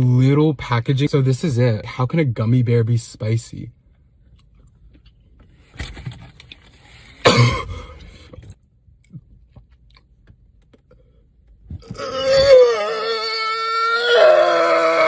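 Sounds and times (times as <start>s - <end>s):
person coughing: 7.2s - 8.0s.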